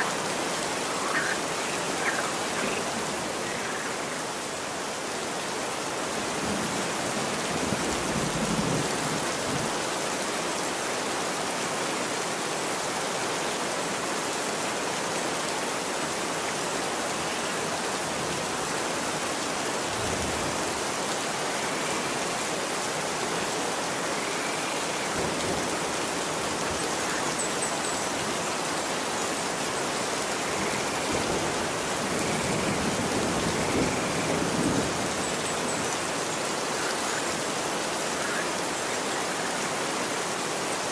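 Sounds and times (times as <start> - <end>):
rain falling on street: 0.0 - 40.9.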